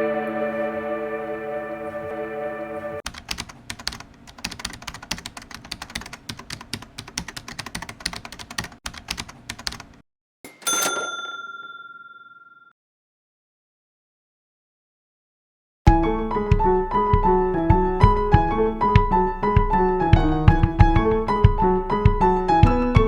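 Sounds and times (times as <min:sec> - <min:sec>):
typewriter bell ding: 0:10.5 - 0:12.7.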